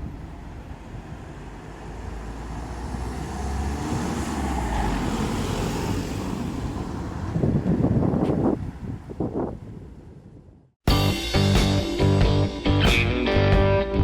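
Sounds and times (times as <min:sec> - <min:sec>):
road and wind noise: 0:00.0 - 0:10.8
vehicle engine rumble: 0:00.0 - 0:10.8.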